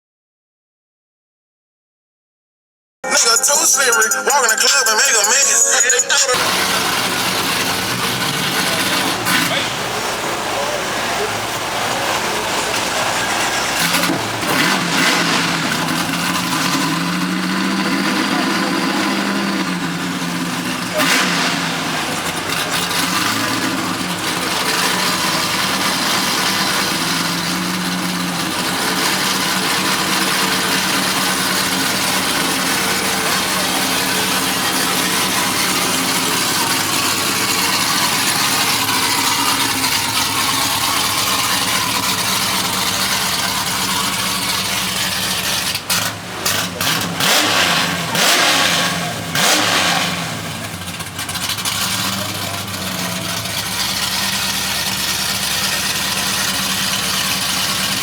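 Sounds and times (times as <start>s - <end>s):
car engine revving: 6.3s - 58.0s.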